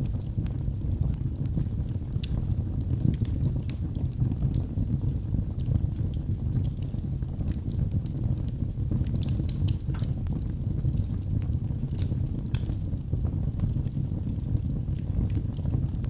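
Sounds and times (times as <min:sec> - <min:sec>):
fire crackling in fireplace: 0:00.0 - 0:16.0.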